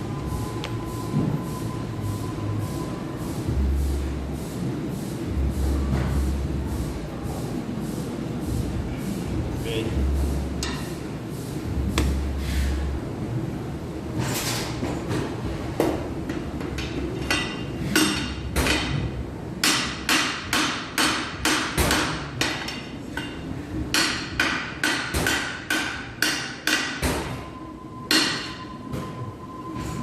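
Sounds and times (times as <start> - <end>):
hammer striking metal: 19.6 - 27.4, 28.1 - 28.6.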